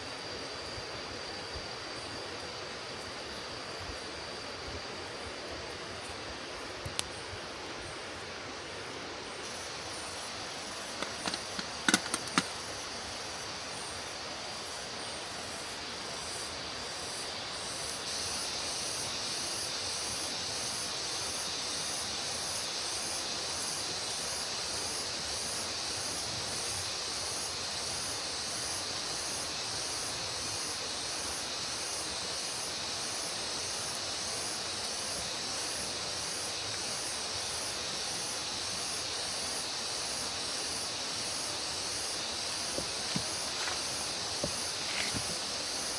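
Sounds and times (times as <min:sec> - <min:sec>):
hissing outdoor ambience: 0:00.0 - 0:45.9
sharp clicks or knocks: 0:11.0 - 0:12.6.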